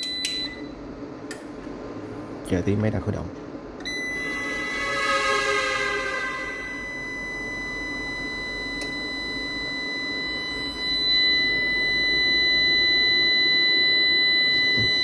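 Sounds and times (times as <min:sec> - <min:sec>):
high-pitched electronic tone: 0:03.9 - 0:07.4
low hum: 0:03.9 - 0:07.8.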